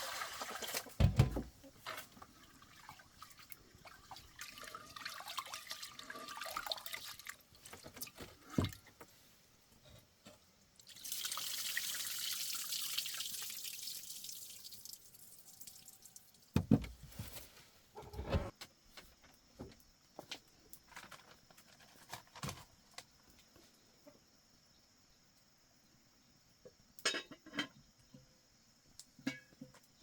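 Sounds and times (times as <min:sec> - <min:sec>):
water running in a stream: 0:00.0 - 0:08.9, 0:10.6 - 0:16.7
water dripping and splashing: 0:01.8 - 0:08.8, 0:10.8 - 0:16.6
knock: 0:16.6 - 0:16.9
thumps: 0:16.6 - 0:17.4.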